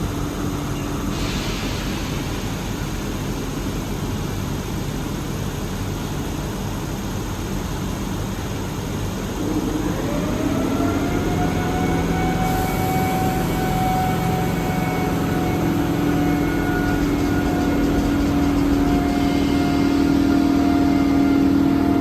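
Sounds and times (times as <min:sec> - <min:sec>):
train whine: 0:00.0 - 0:06.6, 0:08.5 - 0:22.0
train rumble: 0:00.0 - 0:22.0
low hum: 0:15.3 - 0:22.0.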